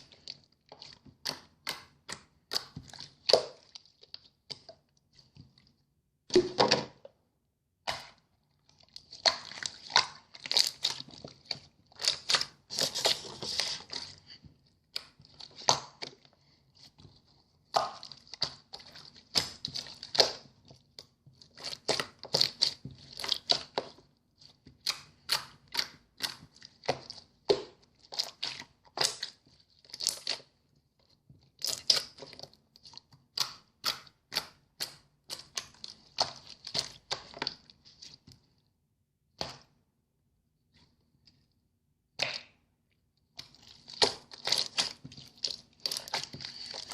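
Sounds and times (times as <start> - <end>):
slime popping and crackling: 7.9 - 16.3, 17.6 - 30.5, 31.5 - 38.2, 43.4 - 46.9.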